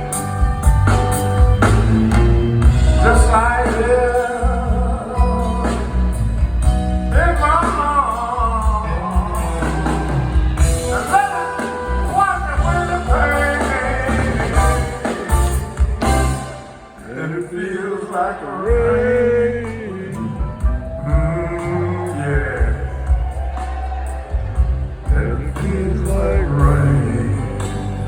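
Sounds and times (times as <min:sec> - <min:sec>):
steady bass: 0:00.0 - 0:17.0, 0:18.7 - 0:28.0
live blues band playing: 0:00.0 - 0:28.0.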